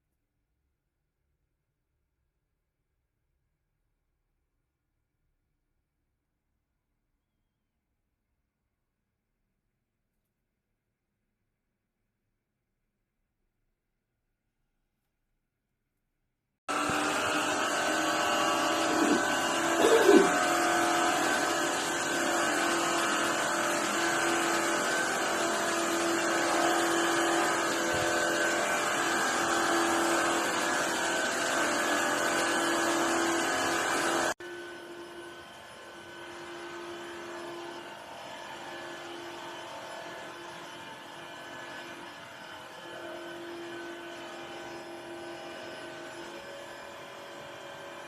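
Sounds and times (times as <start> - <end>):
floor washer motor whirring: 16.7 - 48.0.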